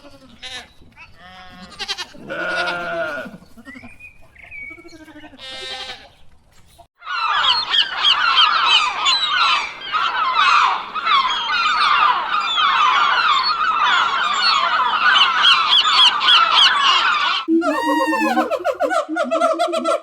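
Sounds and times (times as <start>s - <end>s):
flock of birds calling: 7.0s - 19.1s.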